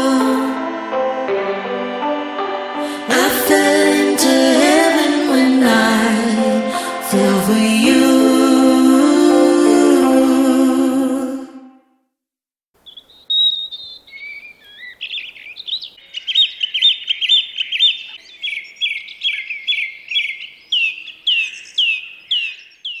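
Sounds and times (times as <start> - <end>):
songbird singing: 12.8 - 23.0.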